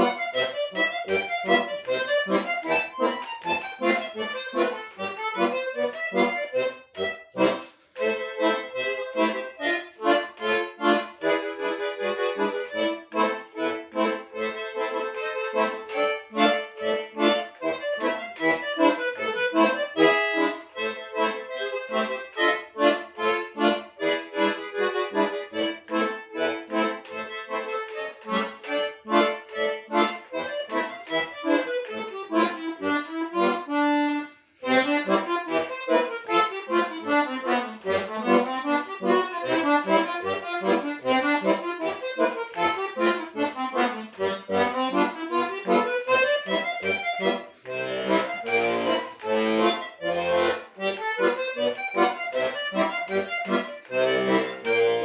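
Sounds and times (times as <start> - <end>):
solo accordion playing: 0.0 - 55.0.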